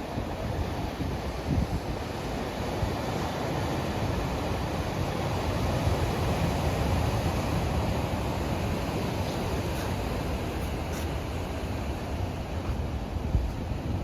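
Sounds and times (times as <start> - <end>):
ocean surf rushing: 0.0 - 14.0
wind blowing across microphone: 0.0 - 14.0.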